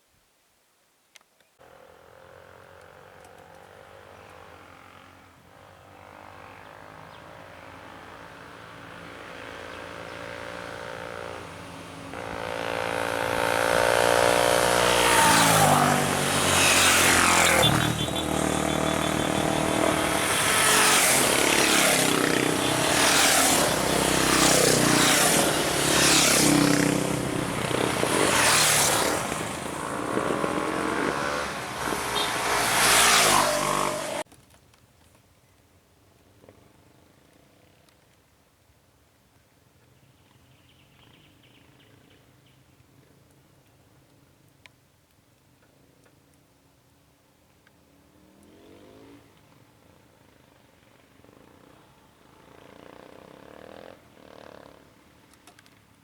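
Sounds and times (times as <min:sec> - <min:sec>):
vehicle engines revving and passing: 0:01.7 - 0:34.2, 0:48.2 - 0:49.6.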